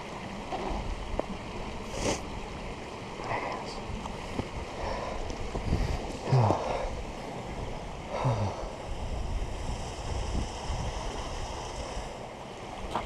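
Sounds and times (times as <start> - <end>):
wind buffeting microphone: 3.4 - 12.2
person grunting: 6.2 - 6.9, 8.1 - 8.7.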